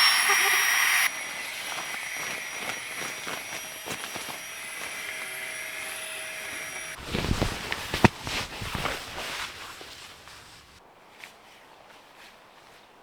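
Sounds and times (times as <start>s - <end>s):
rain hissing: 0.0s - 10.8s
gear rustling and clattering: 1.1s - 10.8s.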